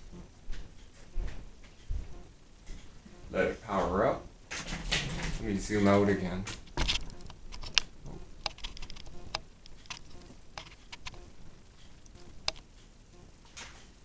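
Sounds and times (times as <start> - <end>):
hands clicking and tapping equipment: 6.8 - 11.3, 11.9 - 12.7.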